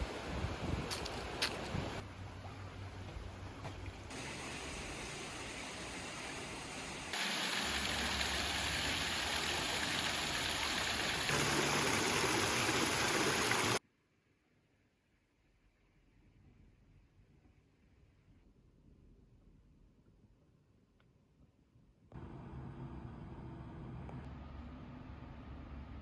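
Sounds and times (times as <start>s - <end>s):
rushing water of stream: 0.0s - 13.8s.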